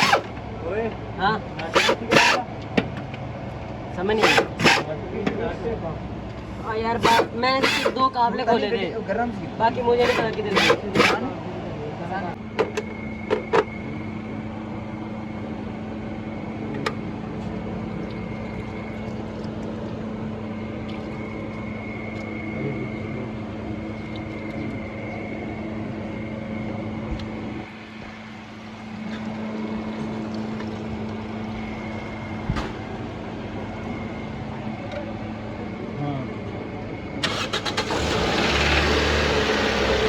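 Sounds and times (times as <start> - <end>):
machine hum: 0.0 - 2.7, 3.3 - 5.1, 6.0 - 8.2, 9.9 - 16.7
sharp clicks: 4.2 - 4.9, 10.0 - 11.2.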